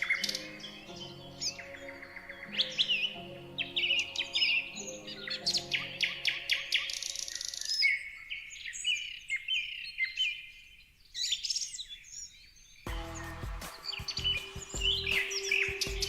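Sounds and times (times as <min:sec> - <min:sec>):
songbirds chirping: 0:00.0 - 0:16.0
soft sustained music pad: 0:12.9 - 0:16.0.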